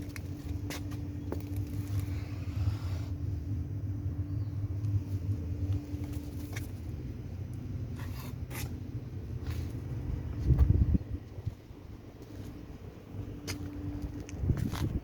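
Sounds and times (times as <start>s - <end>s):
hum: 0.0s - 15.0s
low steady rumble: 0.0s - 15.0s.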